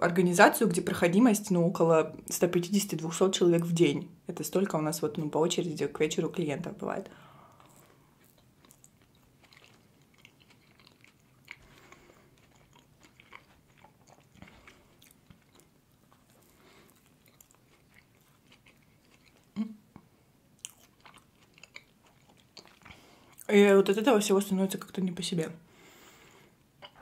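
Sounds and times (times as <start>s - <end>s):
person chewing soft food: 7.3s - 23.5s.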